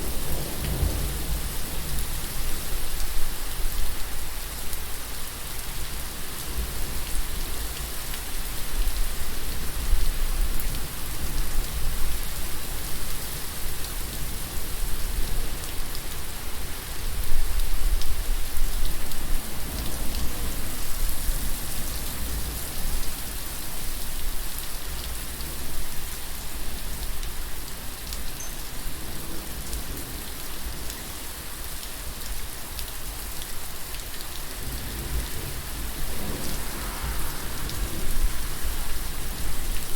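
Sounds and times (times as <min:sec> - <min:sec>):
rain pattering on surfaces: 0:00.0 - 0:39.9
low rumble: 0:35.9 - 0:39.9.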